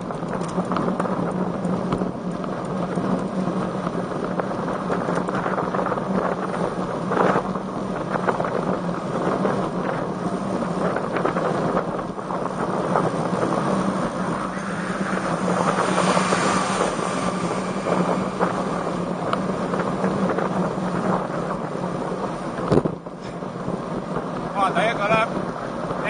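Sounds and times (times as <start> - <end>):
wind rushing over microphone: 0.0 - 26.0
steady low hum: 10.1 - 24.2.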